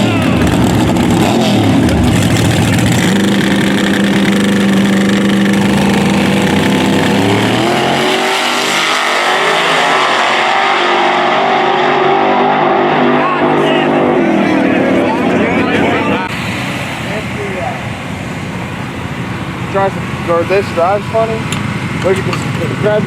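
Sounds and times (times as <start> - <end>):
race engine at high revs: 0.0 - 18.1.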